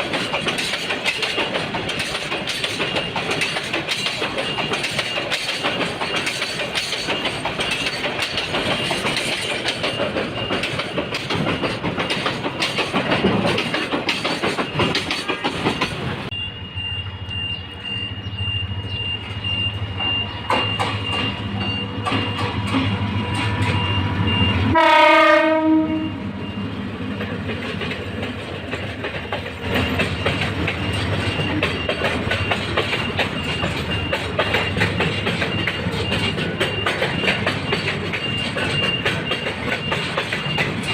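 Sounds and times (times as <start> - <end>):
train wheels clattering: 0.0 - 16.3, 19.5 - 25.8, 27.0 - 40.9
train horn blast: 24.6 - 26.4.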